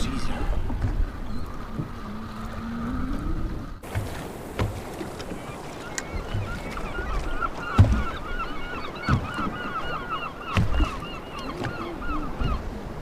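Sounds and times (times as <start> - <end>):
flock of birds calling: 5.1 - 13.0.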